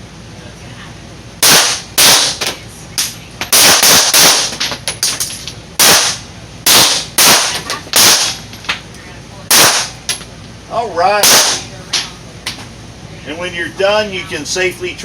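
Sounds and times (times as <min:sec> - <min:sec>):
handgun shots with echoes: 0:05.8 - 0:08.4, 0:09.5 - 0:10.0, 0:11.2 - 0:11.7.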